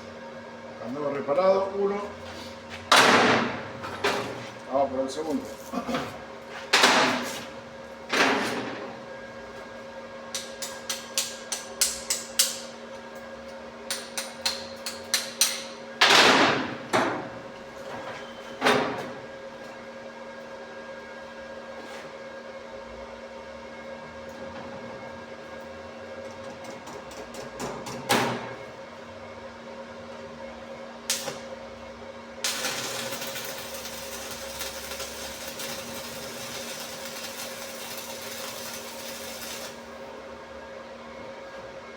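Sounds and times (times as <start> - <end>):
electrical hum: 28.6 - 41.9.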